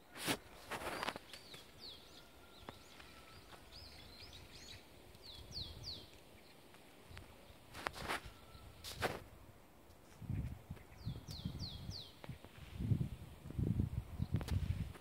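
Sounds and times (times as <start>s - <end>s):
brief scuffing noises: 0.2s - 1.6s, 7.7s - 9.3s
small bird chirping: 0.8s - 7.6s, 10.3s - 12.5s.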